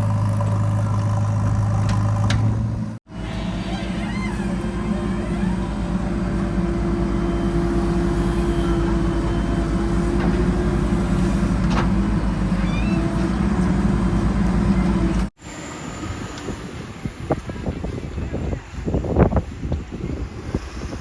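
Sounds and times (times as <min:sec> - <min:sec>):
heavy diesel engine running: 0:00.0 - 0:15.9.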